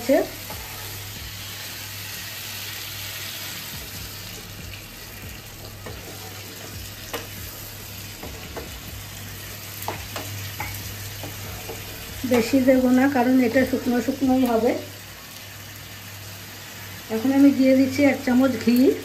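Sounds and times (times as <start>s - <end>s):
vegetables sizzling in a pan: 0.0s - 19.0s
steady low hum: 3.7s - 14.4s
spatula scraping and tapping pan: 5.8s - 7.4s, 8.2s - 8.8s, 9.8s - 12.5s.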